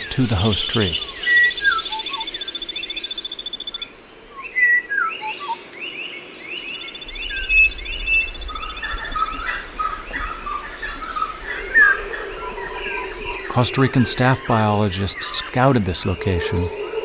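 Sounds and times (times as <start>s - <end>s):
birds whistling and chirping: 0.0s - 5.6s, 6.6s - 17.0s
high insect hum: 0.0s - 17.0s
insect pulsing trill: 0.0s - 17.0s.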